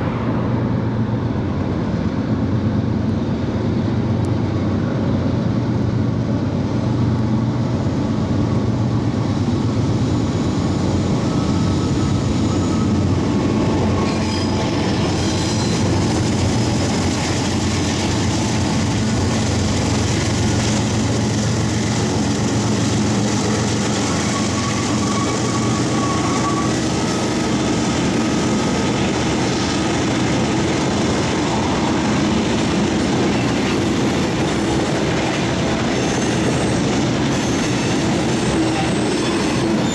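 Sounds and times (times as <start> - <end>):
train wheels rumbling on rails: 0.0 - 39.9
high wheel squeals: 10.4 - 16.2, 22.8 - 28.8, 35.8 - 39.9.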